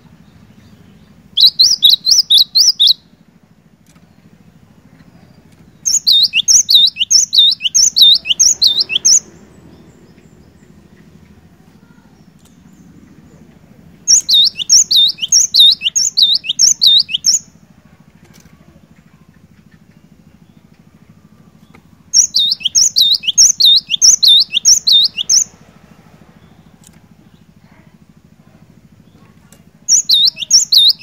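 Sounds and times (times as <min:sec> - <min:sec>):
bird singing ringing phrase: 0:00.2 - 0:03.2, 0:05.7 - 0:11.2, 0:14.0 - 0:17.5, 0:19.1 - 0:25.6, 0:29.8 - 0:31.0.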